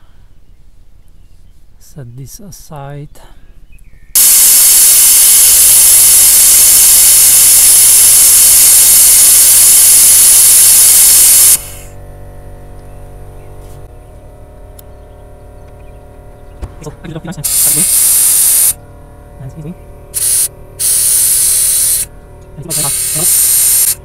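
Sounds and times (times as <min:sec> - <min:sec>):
faint steady hum: 0:00.0 - 0:24.0
compressed air hissing: 0:04.2 - 0:12.0, 0:17.4 - 0:18.8, 0:20.1 - 0:24.0.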